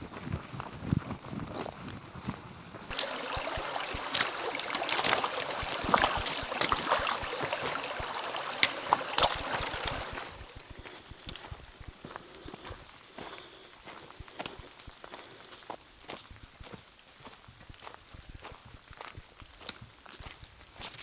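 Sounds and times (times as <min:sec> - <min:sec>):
water splashing and trickling: 0:02.9 - 0:11.4.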